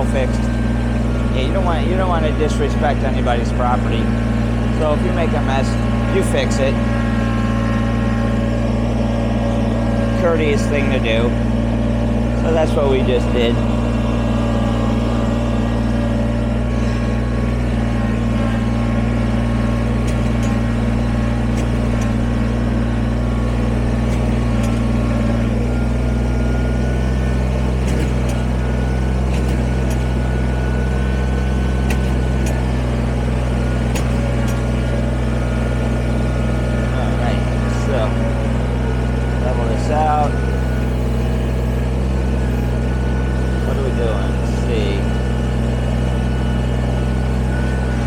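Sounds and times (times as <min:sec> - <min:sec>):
tractor diesel engine running: 0:00.0 - 0:48.0.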